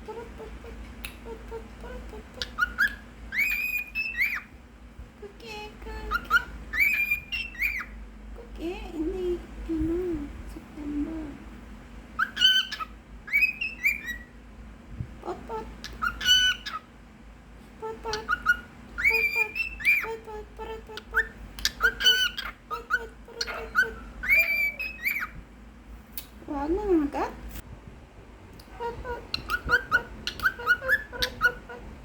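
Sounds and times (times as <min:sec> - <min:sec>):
cockatiel whistling: 0:02.4 - 0:04.5, 0:06.1 - 0:08.0, 0:12.2 - 0:14.3, 0:15.8 - 0:16.8, 0:18.1 - 0:20.1, 0:21.2 - 0:25.4, 0:29.4 - 0:31.7.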